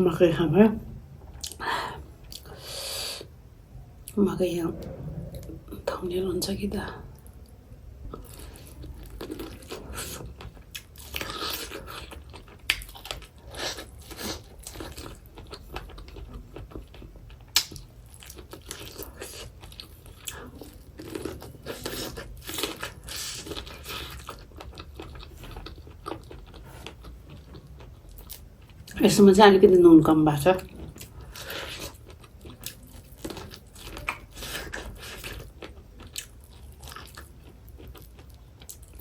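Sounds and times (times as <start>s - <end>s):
chewing corn on the cob: 8.1s - 29.0s, 30.6s - 39.0s.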